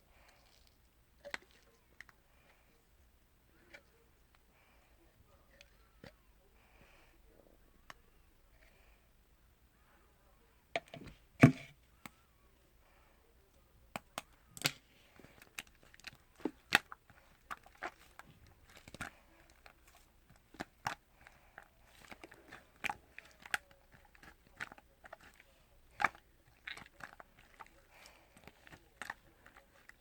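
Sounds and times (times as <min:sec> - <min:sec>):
eating sounds: 0:00.0 - 0:02.9, 0:11.8 - 0:30.0.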